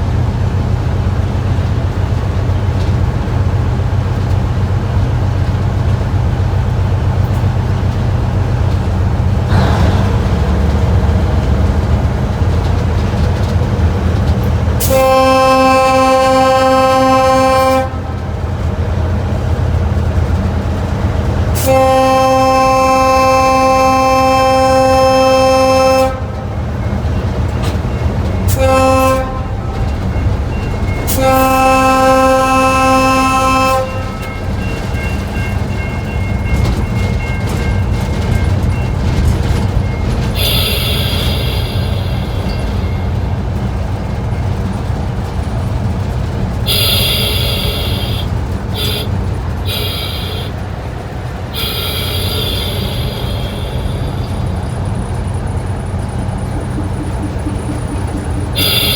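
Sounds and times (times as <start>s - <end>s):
diesel engine rumbling: 0.0s - 58.9s
locomotive horn blasts: 14.8s - 18.6s, 21.5s - 26.7s, 28.4s - 36.8s, 40.1s - 42.8s, 46.6s - 50.7s, 51.4s - 54.6s, 56.5s - 58.9s.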